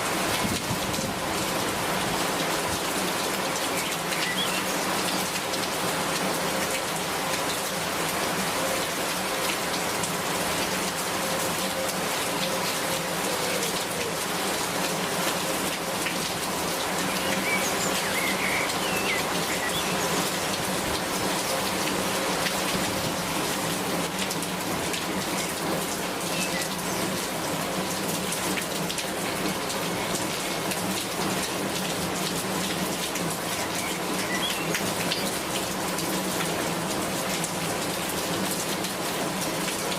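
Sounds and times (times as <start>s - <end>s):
raindrops ticking close by: 0.0s - 39.9s
steady rain: 0.0s - 39.9s.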